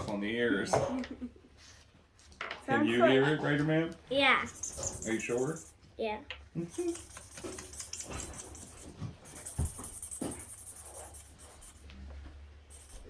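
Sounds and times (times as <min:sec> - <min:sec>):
marker scratching on paper: 0:04.4 - 0:05.8, 0:06.6 - 0:12.1, 0:12.7 - 0:13.0.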